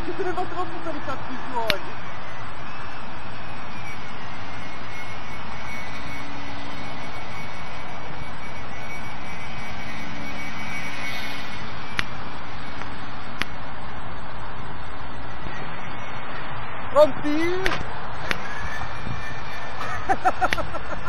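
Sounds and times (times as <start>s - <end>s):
model plane motor whine: 0.0s - 21.0s
strong wind on microphone: 0.0s - 21.0s
sharp click: 12.8s - 13.6s, 17.6s - 18.5s.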